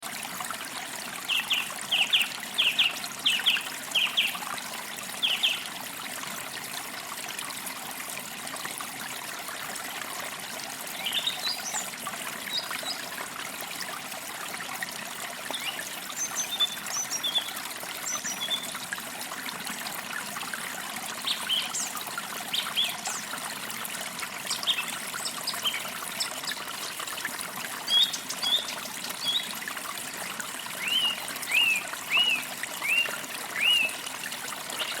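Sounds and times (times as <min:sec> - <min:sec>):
forest stream trickling: 0:00.0 - 0:35.0
songbirds chirping: 0:30.6 - 0:34.0.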